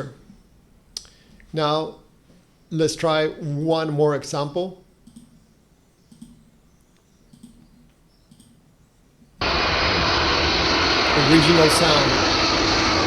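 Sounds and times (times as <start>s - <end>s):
faint clicks: 5.0s - 5.4s, 6.1s - 8.6s
jet engine noise: 9.4s - 13.0s.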